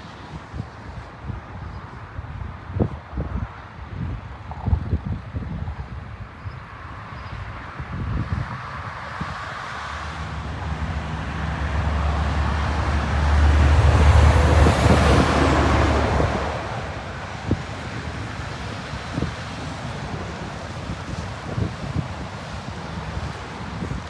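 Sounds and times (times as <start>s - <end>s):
jet airliner passing overhead: 8.7s - 24.0s.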